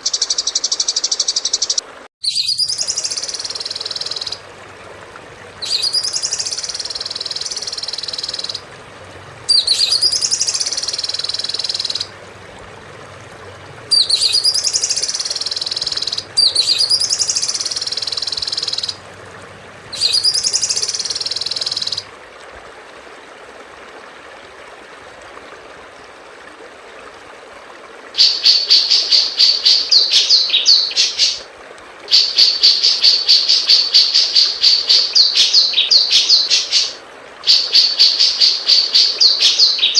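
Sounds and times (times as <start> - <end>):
songbird whistle and buzzing trill: 0.0 - 4.4, 5.6 - 8.6, 9.5 - 12.1, 13.9 - 19.0, 19.9 - 22.0.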